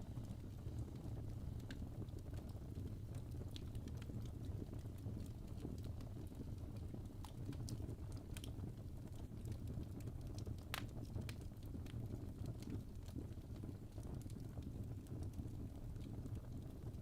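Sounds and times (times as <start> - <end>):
fire rumbling: 0.0 - 17.0
fire snaps and pops: 0.0 - 17.0.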